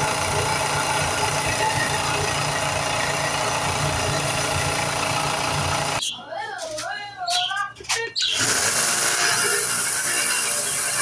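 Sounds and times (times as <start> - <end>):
power tool humming: 0.0 - 6.0, 8.4 - 11.0.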